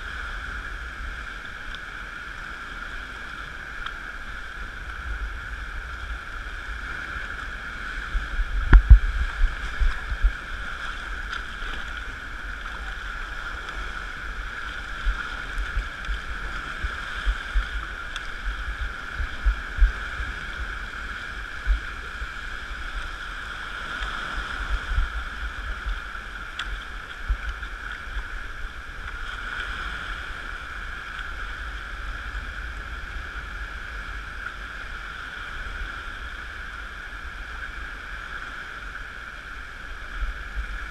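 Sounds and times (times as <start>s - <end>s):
water rushing along a hull: 0.0s - 40.9s
low thumps: 8.6s - 10.3s.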